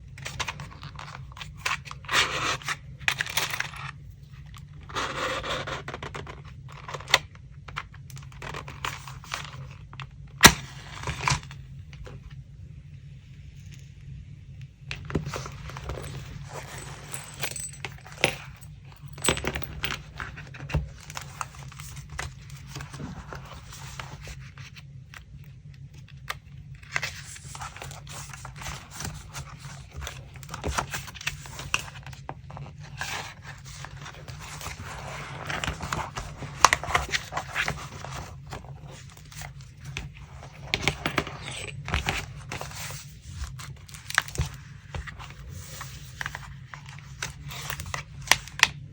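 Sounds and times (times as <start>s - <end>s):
steady low hum: 6.4s - 48.9s
paper rustling and tearing: 26.8s - 48.7s.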